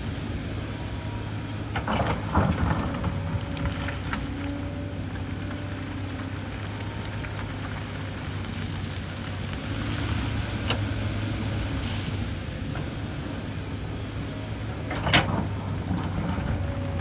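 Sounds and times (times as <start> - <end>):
excavator diesel engine humming: 0.0 - 17.0.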